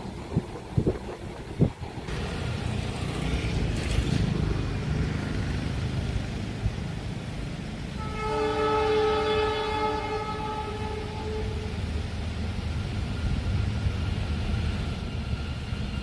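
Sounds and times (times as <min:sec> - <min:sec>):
train rumbling: 0:00.0 - 0:16.0
train horn: 0:07.9 - 0:11.9.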